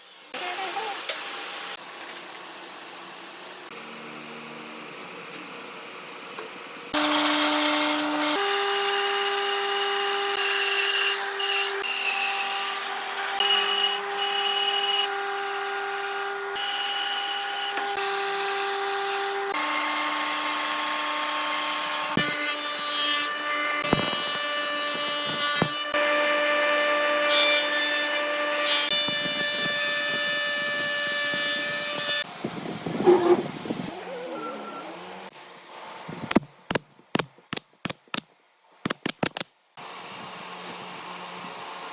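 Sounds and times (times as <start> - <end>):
power tool cutting wood: 6.9 - 32.3.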